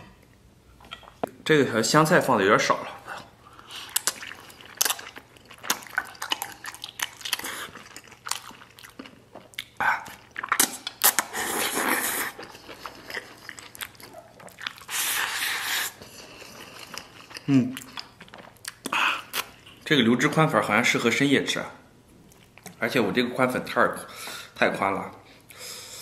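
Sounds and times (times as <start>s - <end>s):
wet chewing with smacking: 3.6s - 19.8s
noodle slurps: 10.4s - 13.6s.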